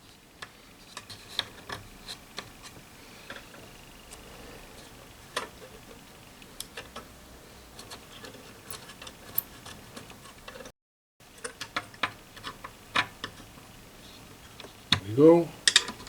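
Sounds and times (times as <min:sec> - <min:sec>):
light clicks and taps of tools: 0:00.0 - 0:04.2, 0:15.7 - 0:16.0.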